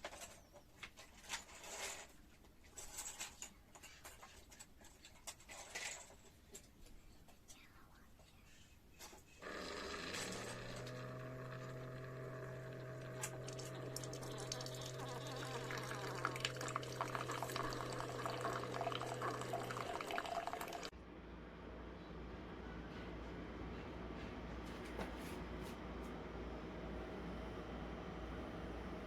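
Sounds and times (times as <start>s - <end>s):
coffee maker pump humming: 9.4s - 20.9s
hot water gurgling into cup: 9.4s - 20.9s.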